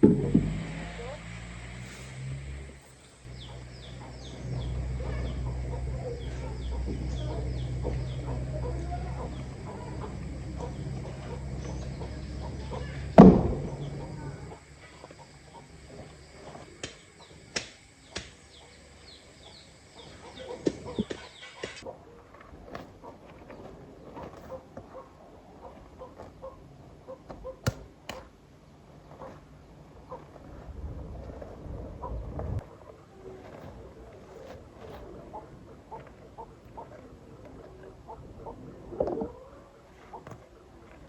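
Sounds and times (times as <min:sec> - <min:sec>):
sharp knock: 0:00.0 - 0:00.8
steady low hum: 0:00.0 - 0:27.2
chickens clucking and peeping: 0:03.2 - 0:27.6, 0:31.9 - 0:41.0.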